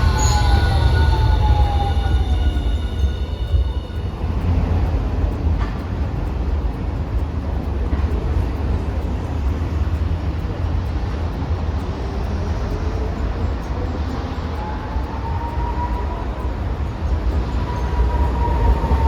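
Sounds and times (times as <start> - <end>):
streetcar low rumble: 0.0 - 19.0
streetcar squealing whine: 0.0 - 19.0.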